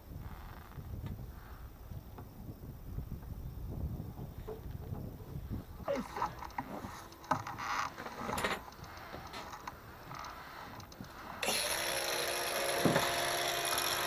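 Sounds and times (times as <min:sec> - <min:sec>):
tools and parts clattering: 0:05.9 - 0:11.6
power tool running: 0:11.2 - 0:14.0.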